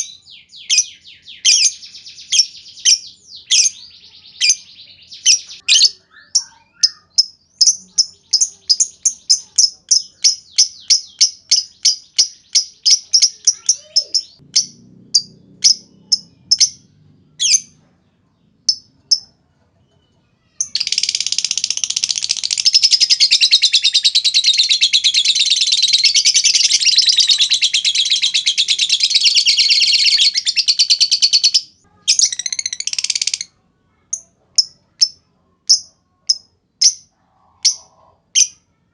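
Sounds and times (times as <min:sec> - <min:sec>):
lovebirds chirping and chattering: 0:00.0 - 0:38.8.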